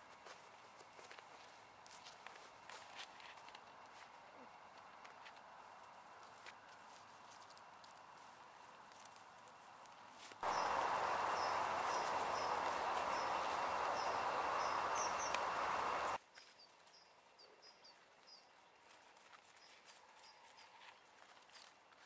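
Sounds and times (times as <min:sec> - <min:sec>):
leaves rustling underfoot: 0:05.6 - 0:16.6
steady rushing noise: 0:10.4 - 0:16.2
small bird chirping: 0:10.4 - 0:18.5.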